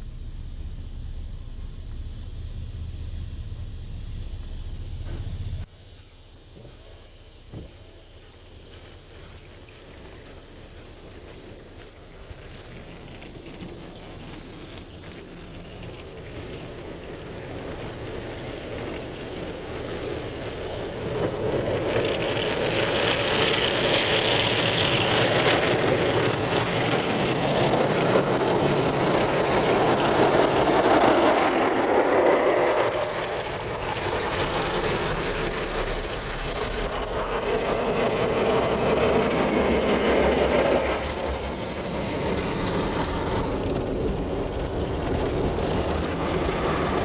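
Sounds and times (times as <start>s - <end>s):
hiss: 0.0s - 37.6s.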